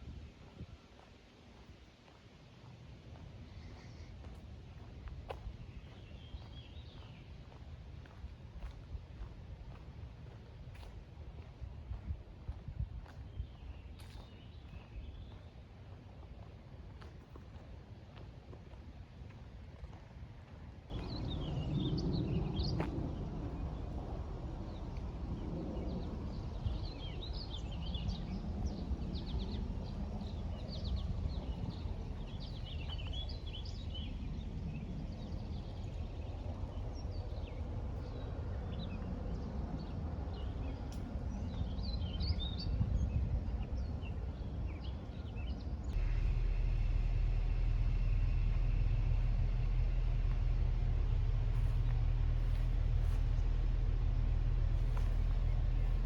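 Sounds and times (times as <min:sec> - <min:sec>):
low outdoor rumble: 0:00.0 - 0:56.0
songbirds chirping: 0:00.4 - 0:11.6, 0:12.4 - 0:18.2, 0:20.8 - 0:56.0
loud steady low hum: 0:45.7 - 0:56.0.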